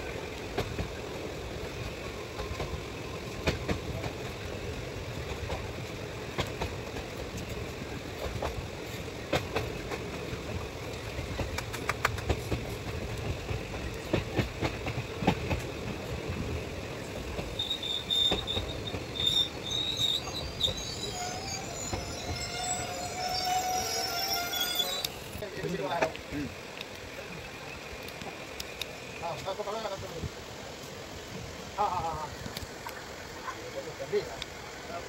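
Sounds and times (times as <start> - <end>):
train wheels clacking on rails: 0.0 - 25.0
train brakes squealing: 17.5 - 26.1.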